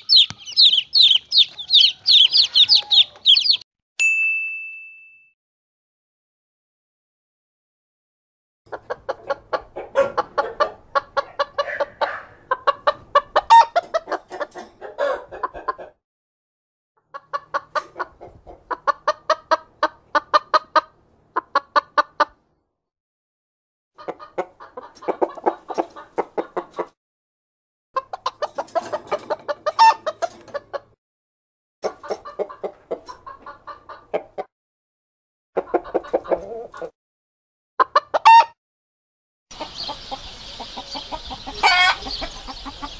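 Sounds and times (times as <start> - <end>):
chicken clucking: 0.0 - 3.6, 8.7 - 16.0, 17.1 - 22.4, 24.0 - 27.0, 28.0 - 31.0, 31.8 - 34.5, 35.6 - 36.9, 37.8 - 38.6, 39.5 - 42.9.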